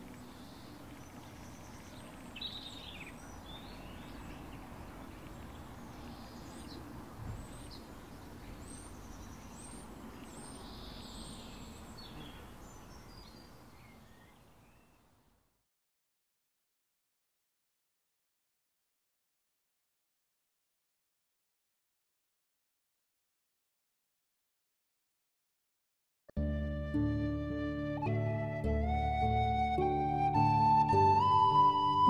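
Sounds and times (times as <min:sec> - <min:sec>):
small birds chirping: 0:00.0 - 0:15.2
low outdoor background noise: 0:00.0 - 0:15.7.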